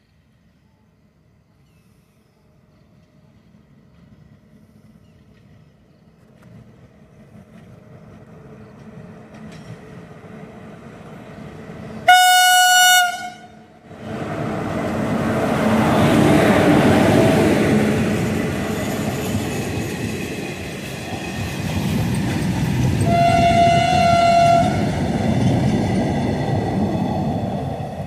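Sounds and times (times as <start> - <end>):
train rumbling: 1.5 - 28.0
locomotive horn blast: 12.0 - 13.8, 23.0 - 25.0.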